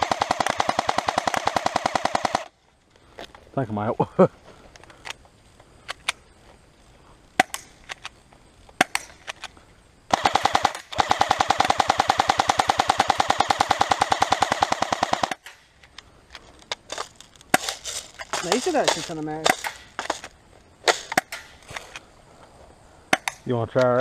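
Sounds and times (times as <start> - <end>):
airsoft rifle firing: 0.0 - 2.5, 10.1 - 15.6.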